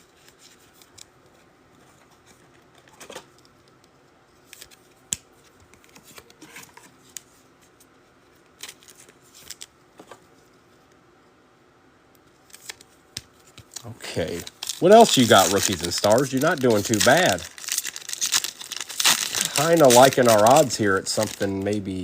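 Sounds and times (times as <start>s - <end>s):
trading cards and wrappers rustling: 12.4s - 22.0s.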